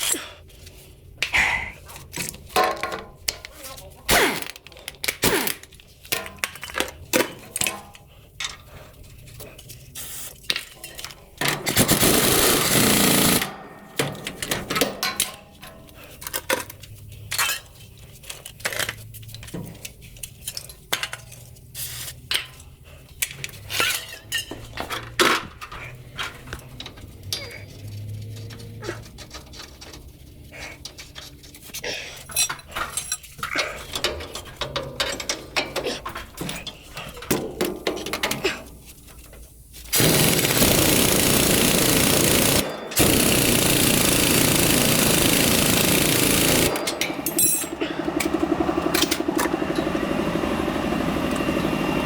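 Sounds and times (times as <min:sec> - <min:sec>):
metal tools clinking and knocking: 0:14.0 - 0:21.5, 0:22.3 - 0:30.2, 0:30.8 - 0:40.0, 0:46.2 - 0:48.3
loud burst of noise: 0:39.9 - 0:47.1.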